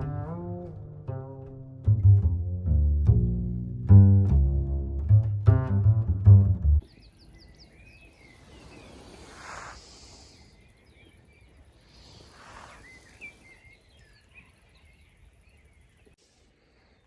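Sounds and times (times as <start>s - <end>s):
songbirds chirping: 6.8s - 17.0s
wind gusts: 6.8s - 17.0s.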